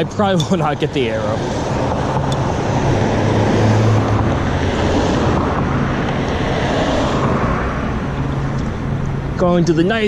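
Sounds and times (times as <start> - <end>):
road traffic rushing: 0.0 - 10.0.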